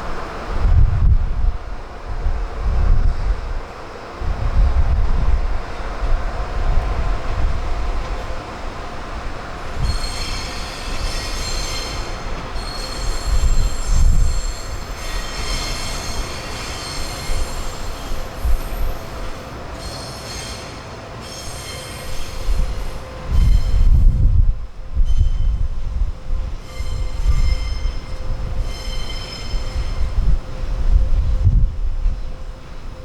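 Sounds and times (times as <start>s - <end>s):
train rolling rumble: 0.0s - 33.0s
train wheels squealing on rails: 9.6s - 33.0s.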